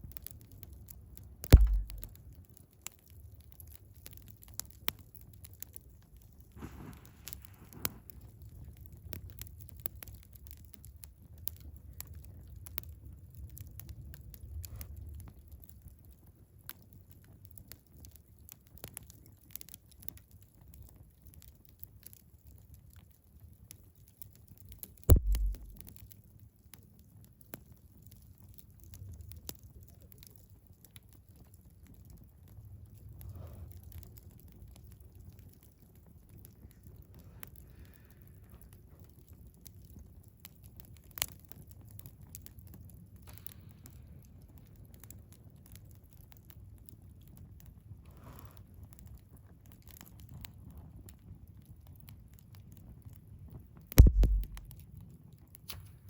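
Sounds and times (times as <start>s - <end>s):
low fire rumble: 0.0s - 2.3s, 3.4s - 18.4s, 25.1s - 26.4s, 27.8s - 55.3s
wood fire crackling and popping: 0.1s - 26.7s, 33.9s - 47.8s, 48.7s - 55.8s
loud knock with deep thud: 1.6s - 2.1s, 25.1s - 25.8s, 54.0s - 54.7s.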